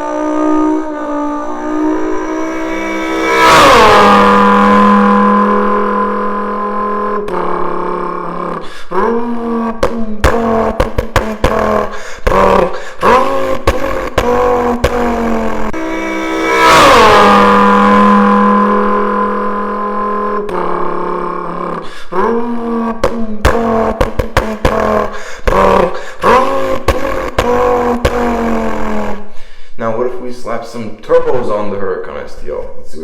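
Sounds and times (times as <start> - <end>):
man imitating engine revving: 0.0 - 29.4.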